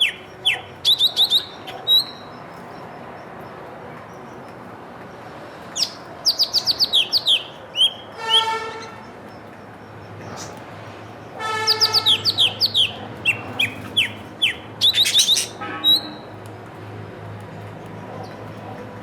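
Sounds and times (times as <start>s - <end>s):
small songbirds chirping: 0.0s - 16.3s
buzzy honk-like bird call: 8.2s - 9.0s, 11.4s - 12.5s.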